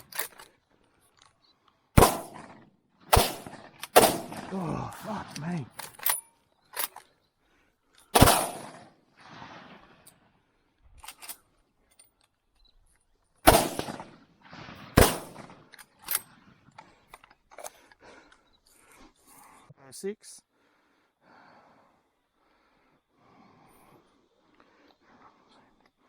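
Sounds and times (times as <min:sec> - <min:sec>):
echoing shotgun shots: 0:02.0 - 0:05.9, 0:08.1 - 0:10.0, 0:13.4 - 0:15.7.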